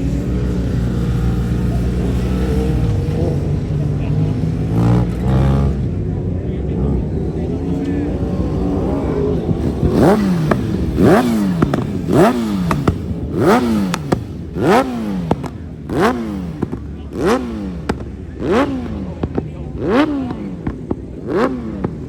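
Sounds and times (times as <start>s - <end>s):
engine throttle blips: 0.0s - 22.0s
sharp exhaust cracks: 7.3s - 22.0s.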